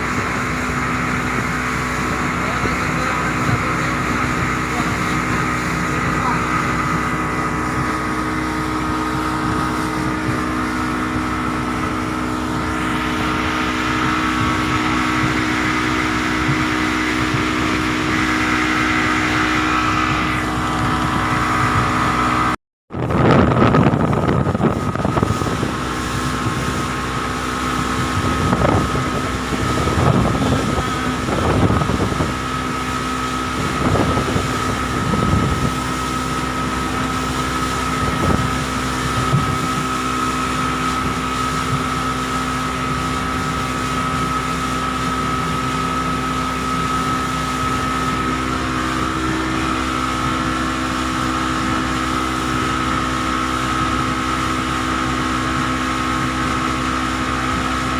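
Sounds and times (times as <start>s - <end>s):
boat engine humming: 0.0s - 57.9s
wind buffeting microphone: 0.0s - 57.9s.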